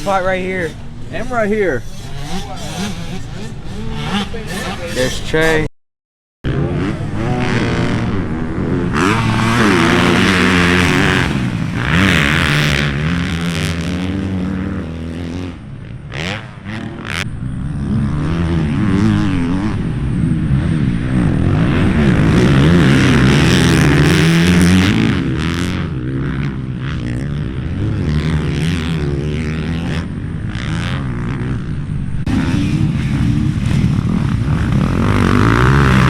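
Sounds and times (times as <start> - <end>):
dirt bike engines revving: 0.0 - 5.7, 6.5 - 36.0.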